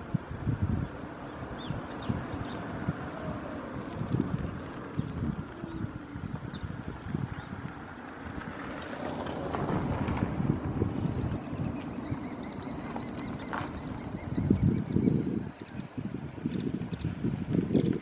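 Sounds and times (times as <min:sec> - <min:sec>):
wind buffeting microphone: 0:00.0 - 0:18.0
bird chirping: 0:01.6 - 0:02.6, 0:10.9 - 0:17.1.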